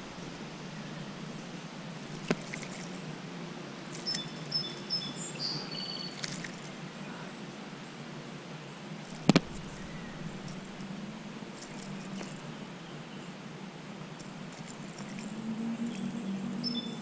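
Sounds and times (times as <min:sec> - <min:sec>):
low background hum: 0:00.0 - 0:17.0
bird chirping: 0:03.9 - 0:07.4, 0:09.2 - 0:13.4, 0:14.2 - 0:17.0.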